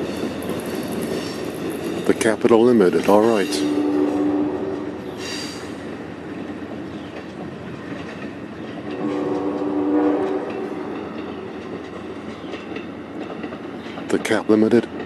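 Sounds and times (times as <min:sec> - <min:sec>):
train wheels rattling over rails: 0:00.0 - 0:15.0
train horn: 0:03.4 - 0:05.0, 0:09.0 - 0:11.0.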